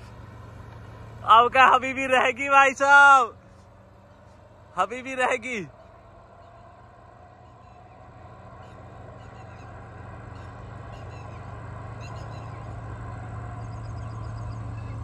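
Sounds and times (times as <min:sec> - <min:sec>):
vehicle engine hum: 0:00.0 - 0:15.0
faint bird chirps: 0:07.4 - 0:12.8, 0:13.5 - 0:15.0.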